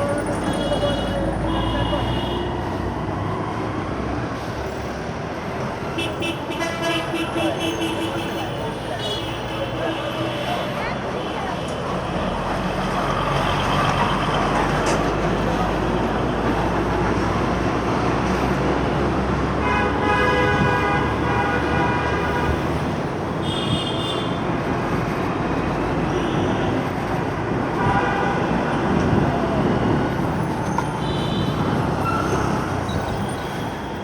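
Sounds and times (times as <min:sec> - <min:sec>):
road and traffic noise: 0:00.0 - 0:34.0
vehicle horn: 0:00.5 - 0:02.5, 0:19.6 - 0:24.4.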